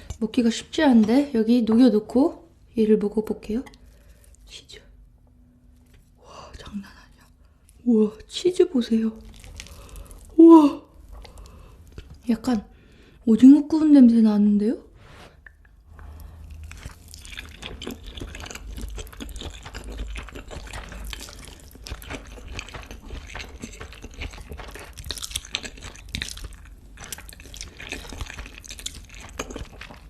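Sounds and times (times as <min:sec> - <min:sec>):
chewing noodles: 0:09.2 - 0:10.4, 0:15.4 - 0:30.0.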